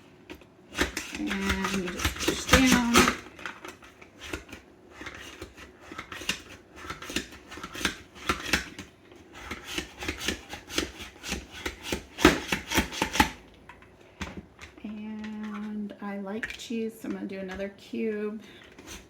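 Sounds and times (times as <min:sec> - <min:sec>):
cheese rasping on a shredder: 0:00.7 - 0:13.4, 0:18.6 - 0:19.0.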